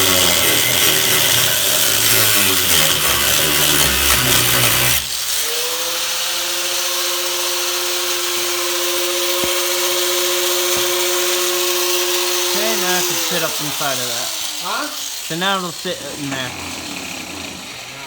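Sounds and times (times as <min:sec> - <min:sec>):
power tool cutting sheet metal: 0:00.0 - 0:18.0
steady machine hum: 0:10.3 - 0:18.0.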